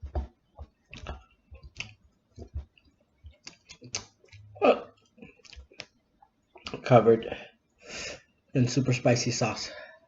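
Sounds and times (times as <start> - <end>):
wet chewing mouth clicks: 0.9 - 4.5.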